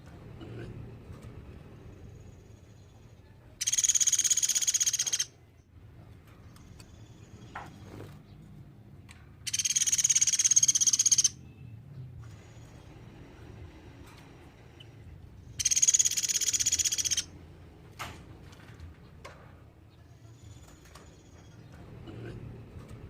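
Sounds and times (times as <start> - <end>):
woodpecker rattling call: 3.6 - 5.4, 9.5 - 11.4, 15.5 - 17.3.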